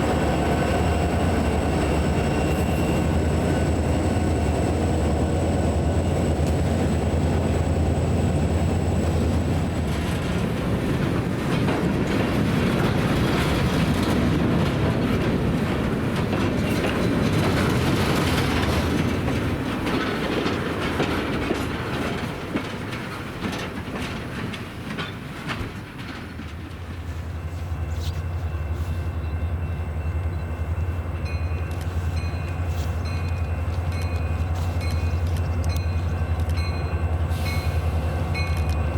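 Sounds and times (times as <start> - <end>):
train wheels clattering over joints: 0.0 - 28.2
diesel locomotive drone: 0.0 - 38.9
low train rumble: 0.0 - 38.9.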